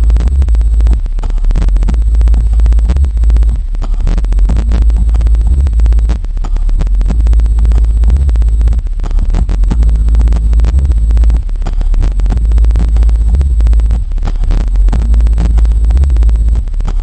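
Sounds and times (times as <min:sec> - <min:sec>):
crackling distortion: 0:00.0 - 0:17.0
subwoofer playing deep bass: 0:00.0 - 0:17.0.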